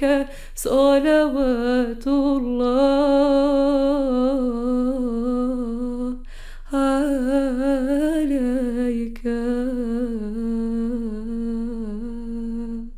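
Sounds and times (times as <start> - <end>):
quick breath: 6.3 - 6.7.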